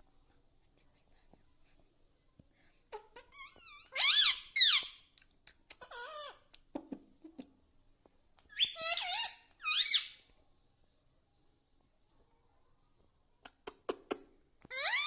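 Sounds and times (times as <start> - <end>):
parakeet squawking: 3.2 - 5.0, 8.6 - 10.2, 14.7 - 15.0.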